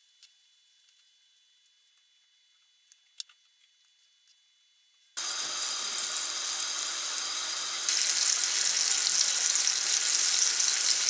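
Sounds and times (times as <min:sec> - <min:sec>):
liver frying in oil: 0:05.2 - 0:11.0.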